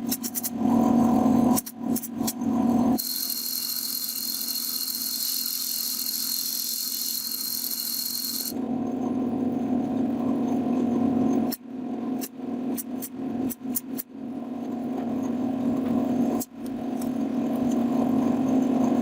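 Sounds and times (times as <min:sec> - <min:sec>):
high hissing wood cut: 0:03.0 - 0:08.5
power tool motor hum: 0:03.0 - 0:08.5.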